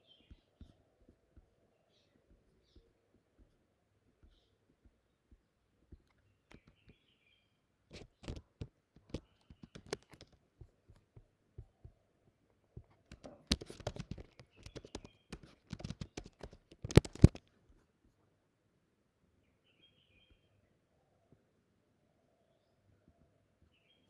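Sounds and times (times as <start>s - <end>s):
typing on computer keyboard: 6.0s - 6.9s, 7.9s - 11.0s, 12.8s - 17.5s.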